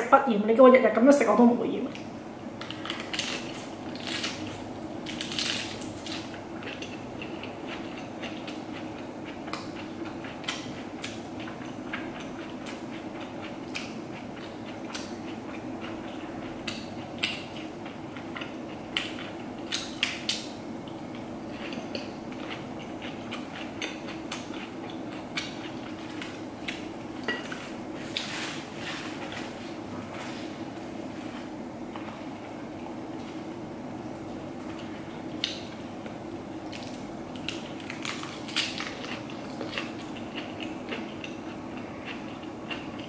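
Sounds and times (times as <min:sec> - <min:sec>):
steady low hum: 0:00.0 - 0:43.0
crisp bites and chewing: 0:02.6 - 0:08.5, 0:36.6 - 0:41.4.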